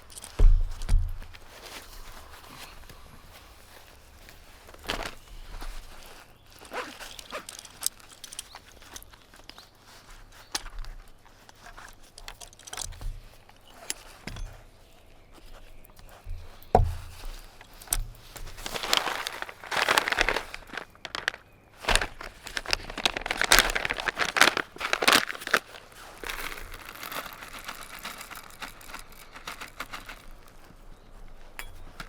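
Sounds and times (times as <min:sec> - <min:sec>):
material crinkling and rustling: 0:00.0 - 0:32.0.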